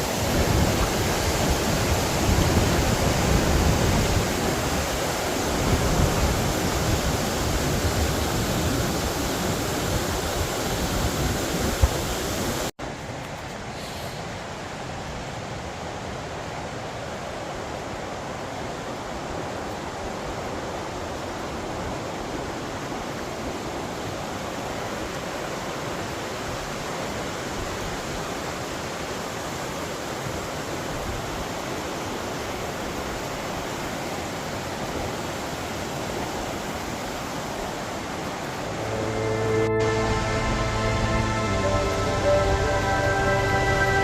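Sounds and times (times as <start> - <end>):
waterfall rushing: 0.0 - 12.7, 31.4 - 44.0
music: 38.7 - 44.0.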